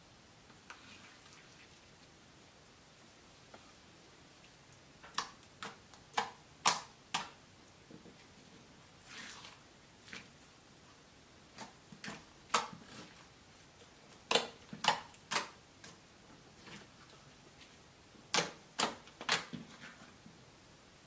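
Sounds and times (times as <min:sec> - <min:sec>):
sticky slime pops and clicks: 0:05.1 - 0:07.3.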